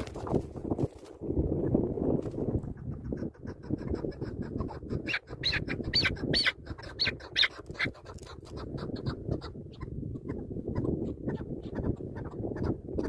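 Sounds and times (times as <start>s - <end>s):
partridge calling: 2.8s - 13.0s.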